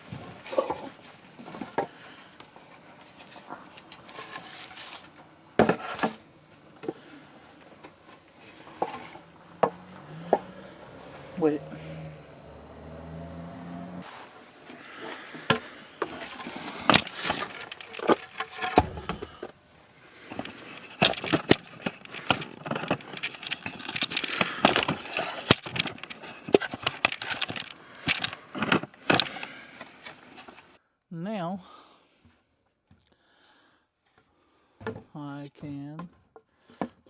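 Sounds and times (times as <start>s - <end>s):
wooden boards knocking and scraping: 5.6s - 6.2s, 15.4s - 19.5s, 20.3s - 30.2s, 34.8s - 35.1s.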